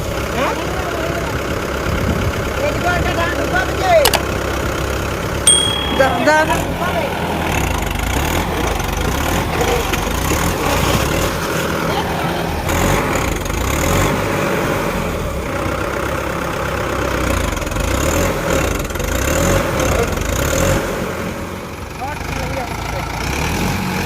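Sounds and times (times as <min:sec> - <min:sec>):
tractor diesel engine running: 0:06.2 - 0:23.4.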